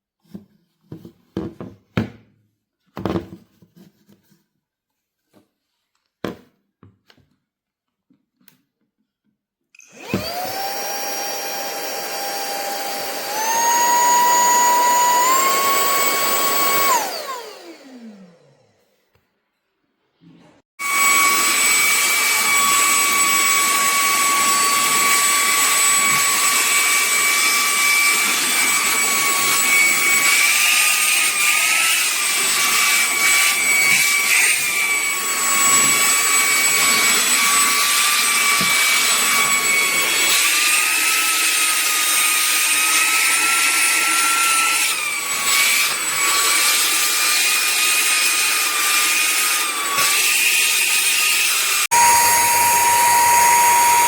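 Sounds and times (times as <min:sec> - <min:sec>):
handheld vacuum motor whine: 0:09.8 - 0:19.2, 0:20.8 - 0:54.0.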